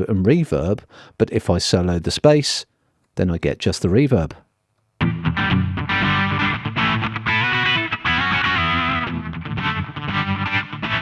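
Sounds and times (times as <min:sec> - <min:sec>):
reverberant electric guitar notes: 0:05.0 - 0:11.0.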